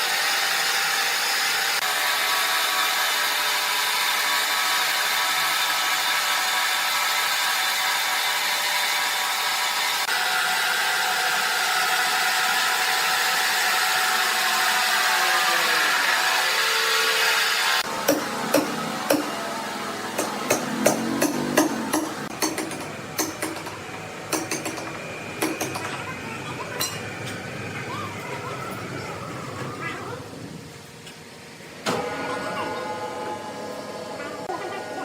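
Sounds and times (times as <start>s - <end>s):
sawmill saw cutting wood: 0.0s - 23.7s
sharp knocks: 20.2s - 25.9s.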